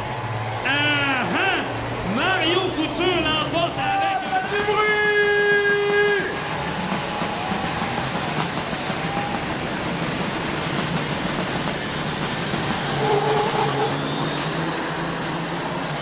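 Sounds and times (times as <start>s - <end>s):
diesel truck engines rumbling: 0.0s - 16.0s
short horn-like tone: 13.0s - 14.1s.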